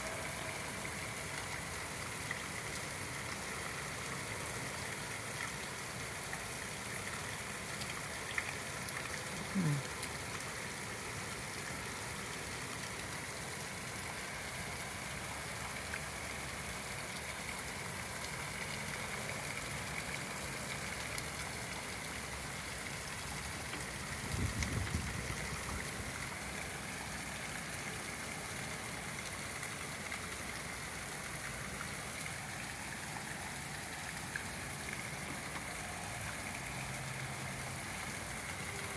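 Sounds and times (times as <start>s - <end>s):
heavy rain falling: 22.6s - 29.1s.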